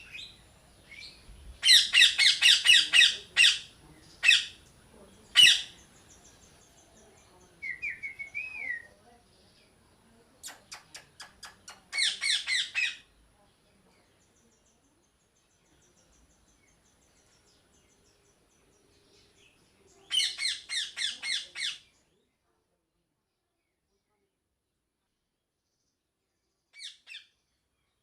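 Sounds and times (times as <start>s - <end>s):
parrot squawking: 1.6s - 4.6s, 5.4s - 5.7s, 12.0s - 13.0s, 20.1s - 21.8s.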